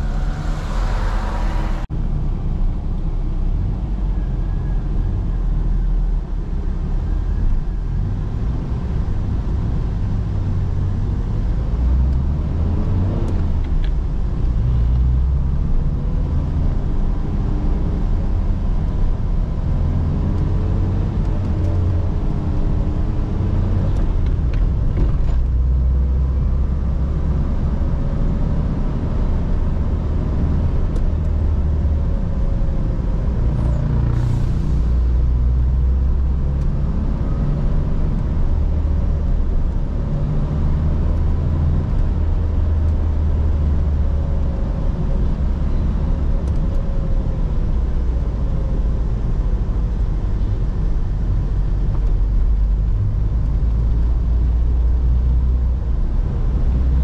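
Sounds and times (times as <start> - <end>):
car engine running: 0.0 - 1.9
low road rumble: 0.0 - 57.0.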